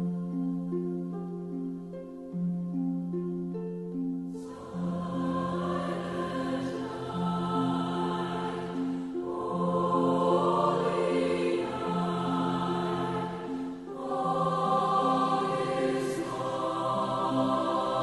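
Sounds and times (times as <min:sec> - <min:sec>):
choir singing sustained notes: 0:04.3 - 0:18.0.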